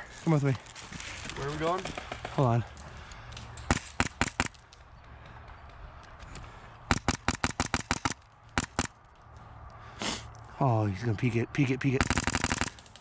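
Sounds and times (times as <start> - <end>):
airsoft rifle shots: 3.6 - 4.7, 6.9 - 9.0, 12.0 - 13.0.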